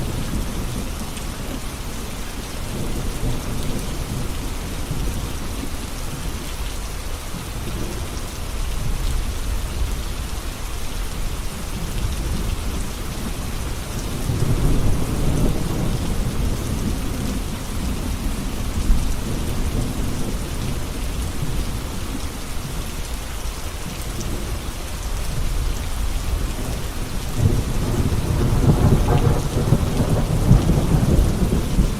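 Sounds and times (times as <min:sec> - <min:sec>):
steady rain: 0:00.0 - 0:31.9
rolling thunder: 0:12.1 - 0:22.0, 0:26.2 - 0:31.9.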